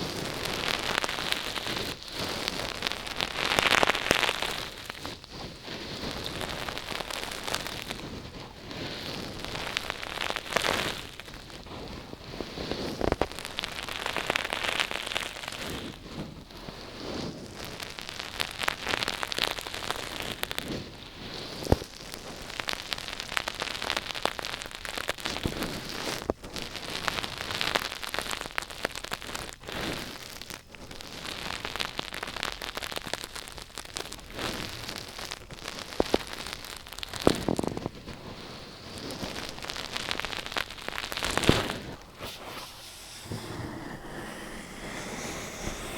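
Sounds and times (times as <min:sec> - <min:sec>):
close crackling and scratching: 0:00.0 - 0:18.9, 0:34.0 - 0:45.9.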